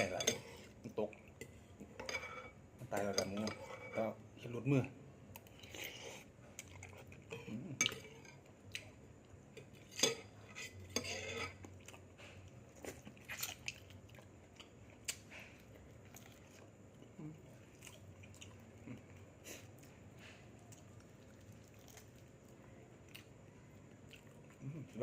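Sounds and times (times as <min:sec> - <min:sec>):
cutlery clinking against dishes: 0:00.0 - 0:00.6, 0:09.8 - 0:11.6
chewing: 0:05.3 - 0:10.0, 0:11.2 - 0:25.0.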